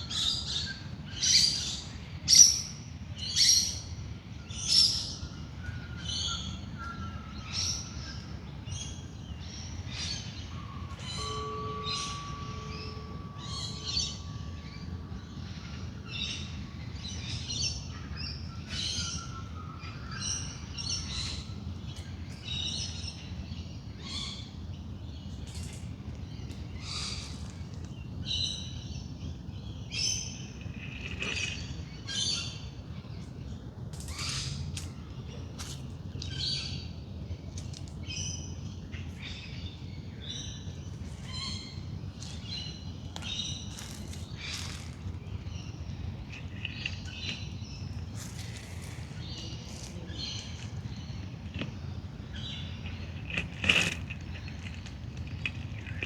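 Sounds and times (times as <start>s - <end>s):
birds chirping and calling: 4.7s - 23.2s.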